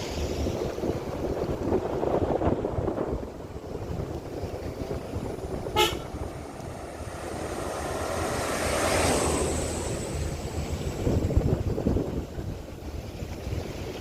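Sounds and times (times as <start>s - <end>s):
road and engine noise: 0.0s - 14.0s
vehicle horn toot: 5.7s - 6.2s.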